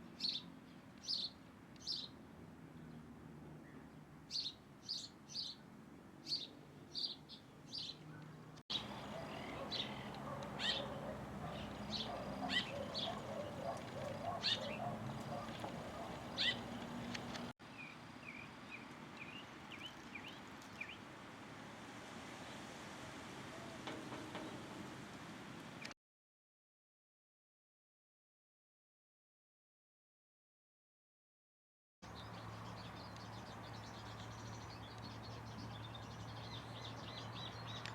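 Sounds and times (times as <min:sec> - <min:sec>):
birds calling sharply: 0:06.3 - 0:21.0, 0:32.1 - 0:37.9
birds chattering: 0:07.7 - 0:17.5, 0:32.1 - 0:37.9.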